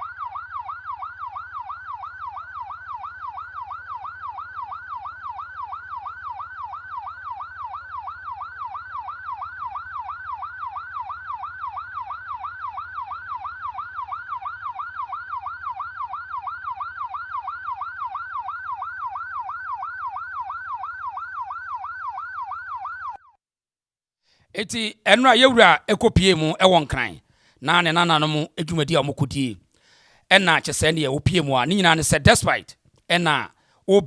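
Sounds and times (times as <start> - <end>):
electronic siren yelping: 0.0 - 23.4.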